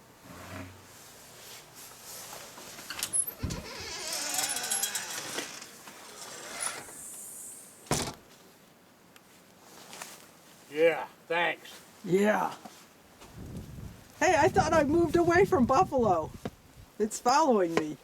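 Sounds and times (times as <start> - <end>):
door scraping: 0.2 - 0.9, 2.9 - 8.2.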